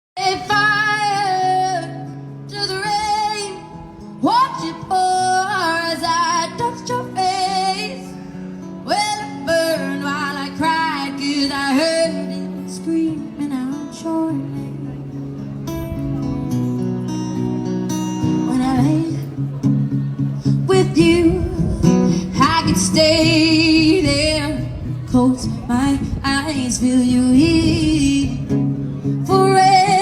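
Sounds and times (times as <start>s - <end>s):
woman singing pop ballad: 0.2s - 8.1s, 8.8s - 14.8s, 20.6s - 28.6s, 29.2s - 30.0s
acoustic guitar: 0.2s - 30.0s.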